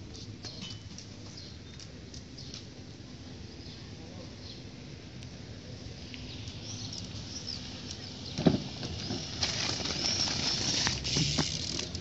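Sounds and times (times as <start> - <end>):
birds chirping: 6.2 - 9.1.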